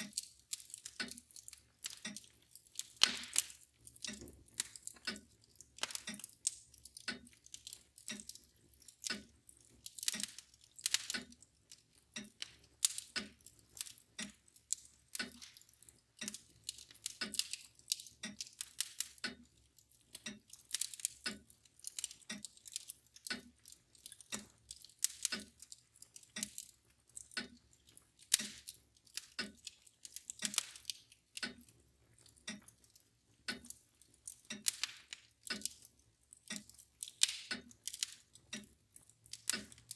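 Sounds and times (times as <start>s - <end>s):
mantel clock ticking: 0.0s - 39.9s
wood fire crackling and popping: 0.0s - 39.9s.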